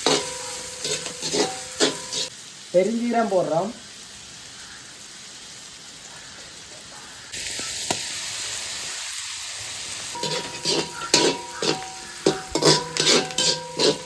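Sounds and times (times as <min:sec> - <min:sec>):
ladle scraping a pan: 0:00.0 - 0:02.3, 0:10.2 - 0:14.0
onions sizzling in hot oil: 0:00.0 - 0:14.0.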